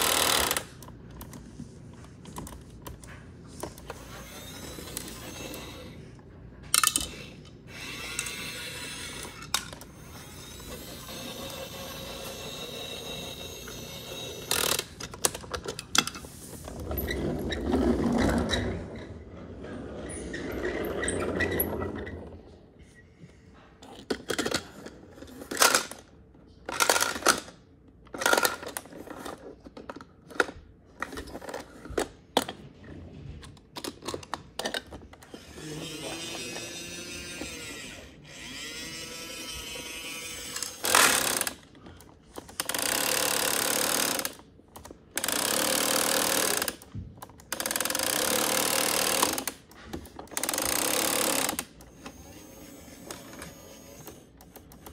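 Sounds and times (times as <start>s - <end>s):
small electric motor running: 4.0s - 6.0s, 7.1s - 14.9s, 35.2s - 41.6s, 50.4s - 54.3s.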